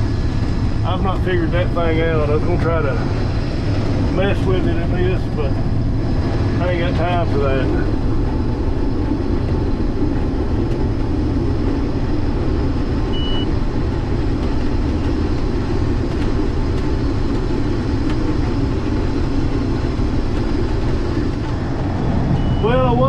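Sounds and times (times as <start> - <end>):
combine harvester drone: 0.0 - 23.0
high beep: 13.1 - 13.5, 22.4 - 22.9.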